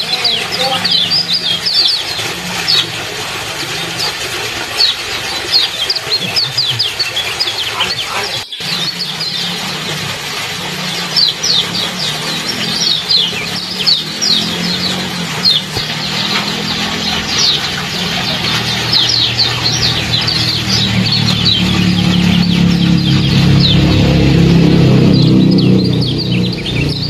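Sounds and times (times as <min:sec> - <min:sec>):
bird chirping: 0:00.0 - 0:03.0, 0:04.8 - 0:09.8, 0:10.9 - 0:27.0
trickling water: 0:00.0 - 0:27.0
low hum: 0:08.6 - 0:27.0.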